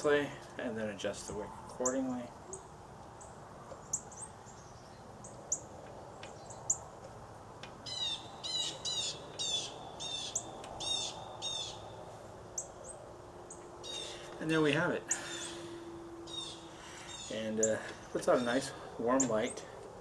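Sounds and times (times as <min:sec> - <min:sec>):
songbird chirping: 0:00.0 - 0:20.0
bird sweeping repeated notes: 0:01.4 - 0:20.0.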